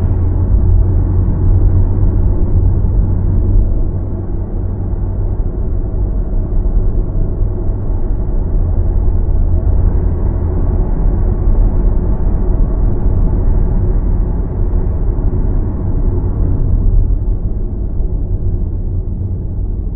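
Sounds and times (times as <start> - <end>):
car road and tyre noise: 0.0 - 19.9.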